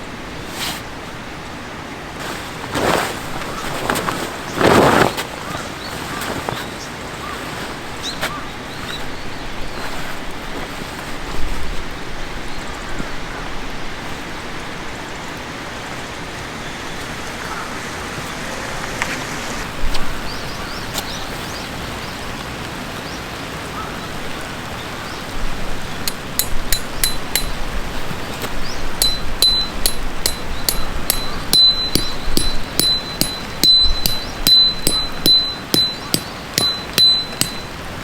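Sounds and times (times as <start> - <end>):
steady rushing noise: 17.1 - 19.9
light ringing clinks: 26.1 - 28.0, 28.6 - 38.0.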